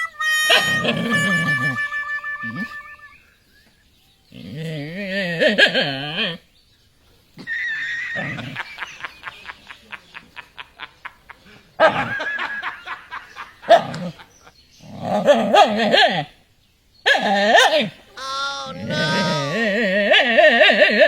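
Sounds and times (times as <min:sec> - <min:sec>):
animal calls: 0:00.0 - 0:03.3, 0:07.4 - 0:09.1, 0:17.0 - 0:21.0.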